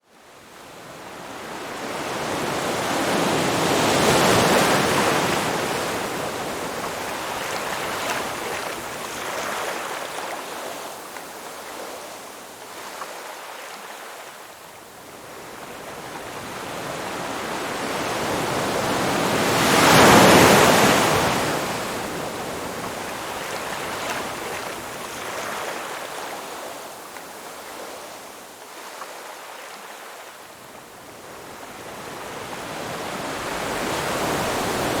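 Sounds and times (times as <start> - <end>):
ocean waves breaking: 1.4 - 12.1, 16.3 - 26.7, 31.5 - 35.0.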